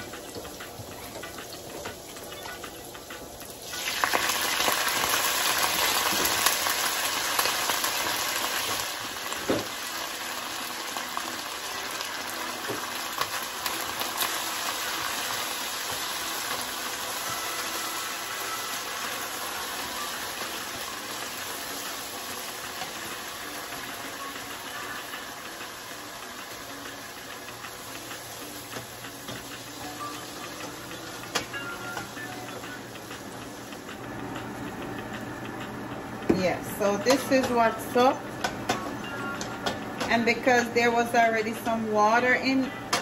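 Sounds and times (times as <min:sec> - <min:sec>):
spinach sizzling in hot oil: 0:00.0 - 0:33.7.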